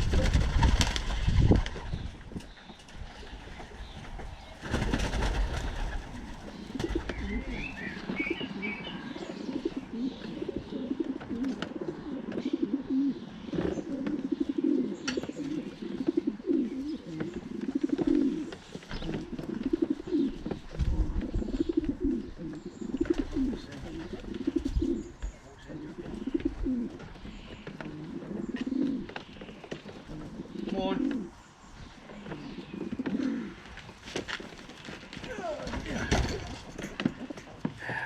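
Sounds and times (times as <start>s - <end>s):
pigeons cooing: 0.0s - 38.0s.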